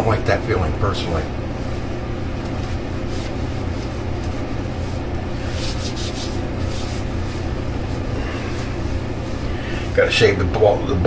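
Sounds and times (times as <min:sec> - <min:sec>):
steady low hum: 0:00.0 - 0:11.0
hands brushing skin: 0:01.6 - 0:10.0.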